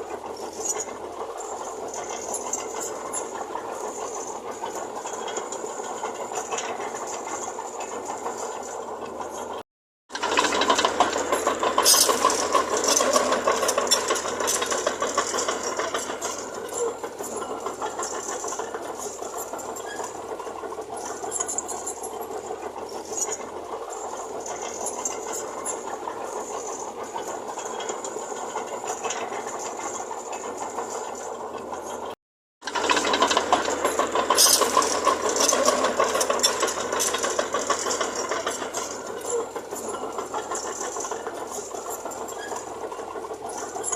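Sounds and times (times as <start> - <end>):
diesel machinery rattling: 0.0 - 43.9.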